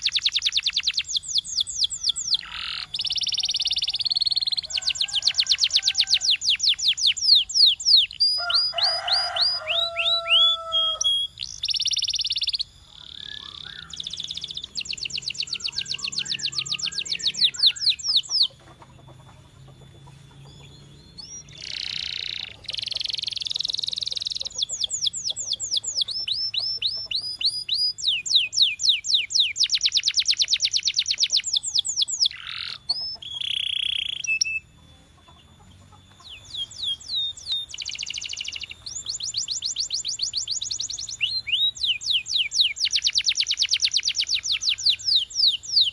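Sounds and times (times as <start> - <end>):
canary singing trills: 0.0 - 45.9.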